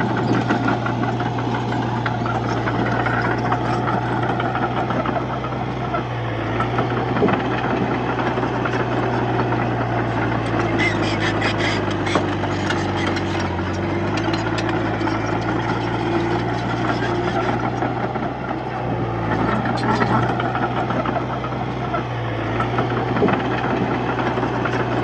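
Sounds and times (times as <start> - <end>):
bulldozer engine running: 0.0 - 25.0
rattling clicks: 11.8 - 15.9.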